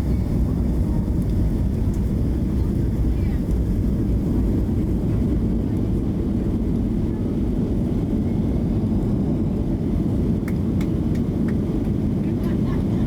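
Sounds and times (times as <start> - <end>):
jet engine cabin rumble: 0.0 - 13.0.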